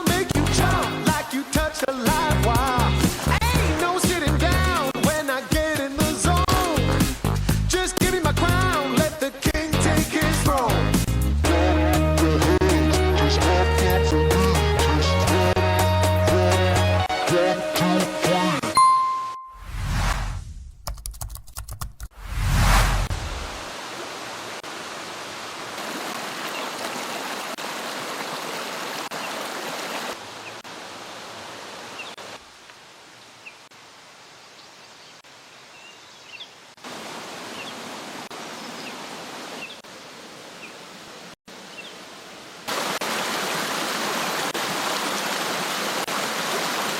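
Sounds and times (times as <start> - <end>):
stream rushing over rocks: 0.0 - 6.8, 23.2 - 32.6, 36.7 - 46.9.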